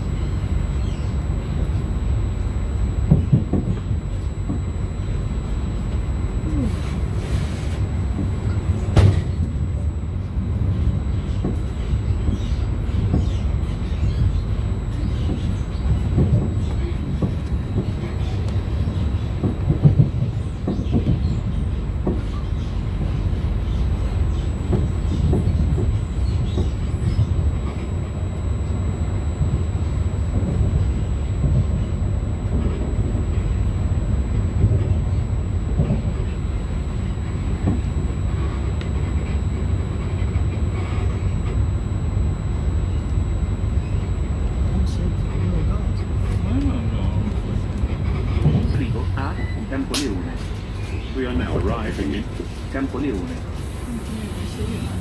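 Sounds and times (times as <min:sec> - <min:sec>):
train rumbling: 0:00.0 - 0:55.0
wheels knocking on track: 0:15.0 - 0:21.4, 0:24.3 - 0:27.8.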